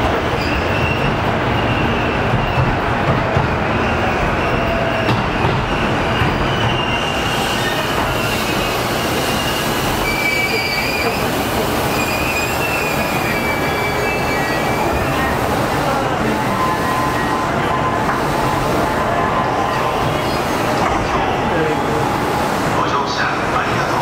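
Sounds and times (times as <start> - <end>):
train wheels rumbling on rail: 0.0 - 24.0
high wheel squeal: 0.3 - 2.5, 3.8 - 15.5.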